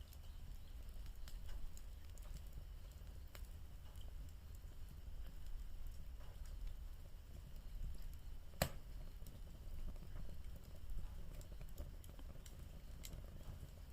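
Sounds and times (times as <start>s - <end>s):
bonfire crackling: 0.0s - 13.9s
loud sharp pop: 8.6s - 8.8s.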